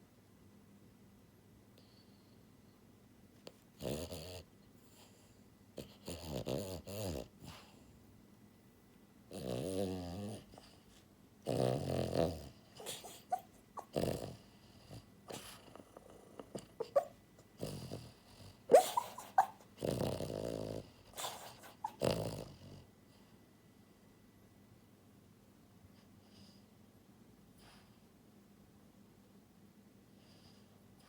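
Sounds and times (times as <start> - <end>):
dog snoring: 3.8 - 7.9, 9.3 - 23.3.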